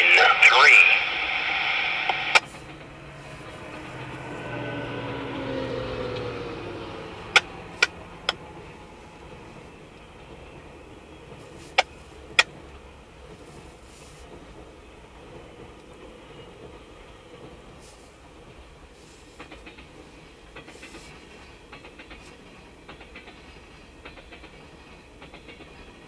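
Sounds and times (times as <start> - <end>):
train passing: 0.0 - 26.0
wheels clicking on rail joint: 6.0 - 26.0.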